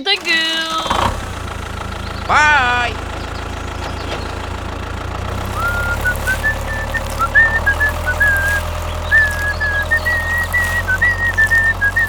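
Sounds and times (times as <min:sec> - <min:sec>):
low engine hum: 0:00.0 - 0:12.0
person whistling a tune: 0:05.5 - 0:12.0.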